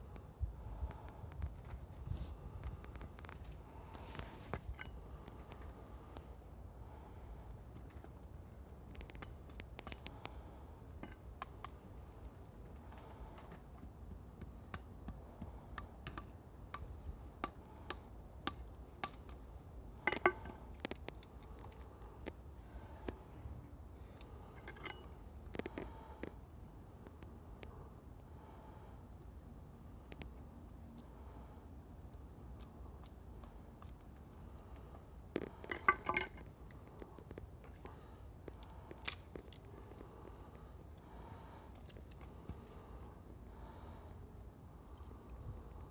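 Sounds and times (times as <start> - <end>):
campfire crackling: 7.4 - 12.9, 31.9 - 43.3
campfire crackling and popping: 8.8 - 10.4.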